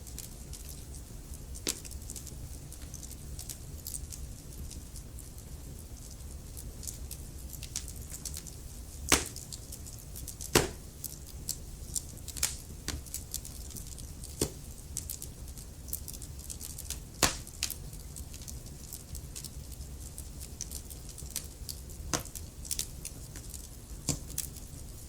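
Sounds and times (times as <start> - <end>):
fire low rumble: 0.0 - 25.0
wood fire crackling: 0.0 - 25.0
loud fire pops: 1.6 - 4.0, 7.6 - 15.3, 16.6 - 17.8, 22.1 - 24.6.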